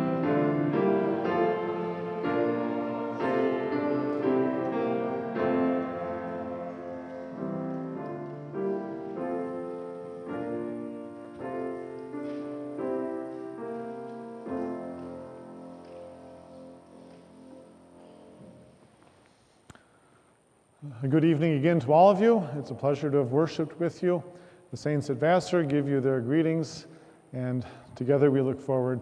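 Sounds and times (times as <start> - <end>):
piano playing sustained chords: 0.0 - 18.8.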